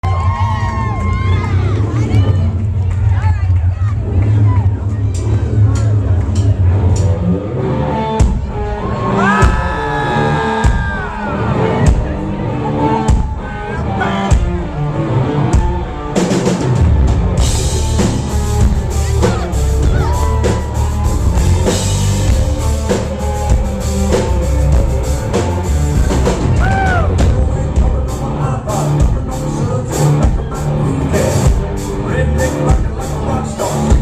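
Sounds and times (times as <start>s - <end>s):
bass: 0.0s - 34.0s
country-rock band playing: 6.4s - 34.0s
drum kit: 8.1s - 12.4s, 13.0s - 34.0s.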